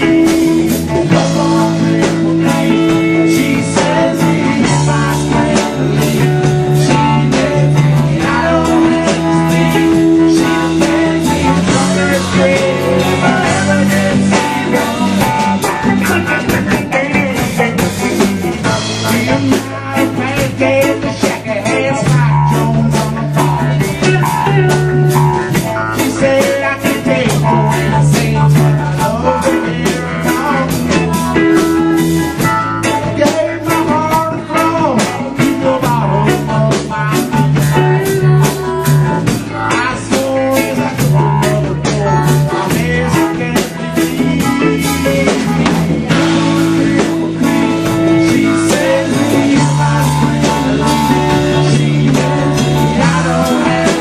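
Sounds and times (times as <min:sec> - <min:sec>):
drum kit beat: 0:00.0 - 0:54.0
electric guitar: 0:00.0 - 0:54.0
walking bass line: 0:00.0 - 0:54.0.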